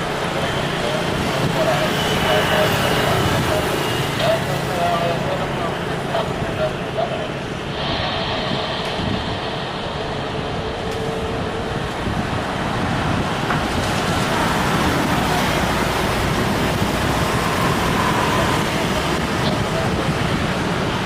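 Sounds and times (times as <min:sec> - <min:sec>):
jet engines rushing: 0:00.0 - 0:21.0
faint high whine: 0:06.6 - 0:12.7.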